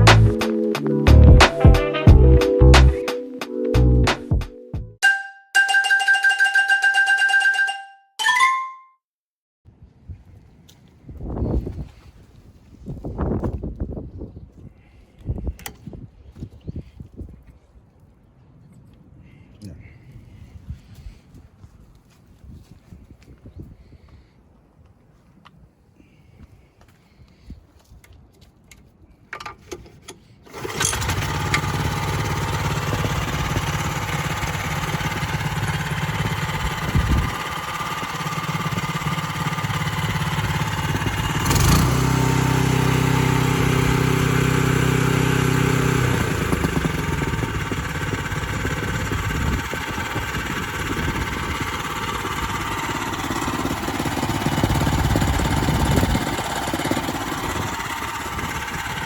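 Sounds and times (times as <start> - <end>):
small gasoline engine running: 30.5 - 59.0.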